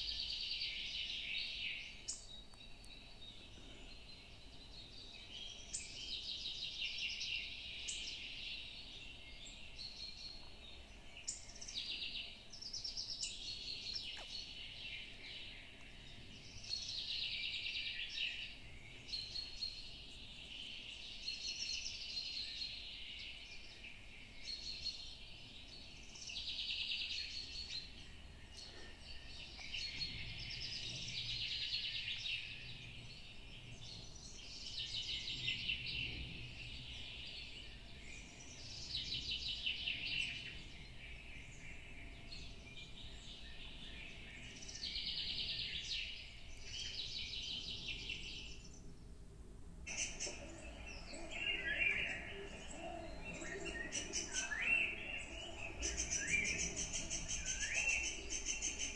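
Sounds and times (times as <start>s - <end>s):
birds singing trilling phrases: 49.9s - 58.9s.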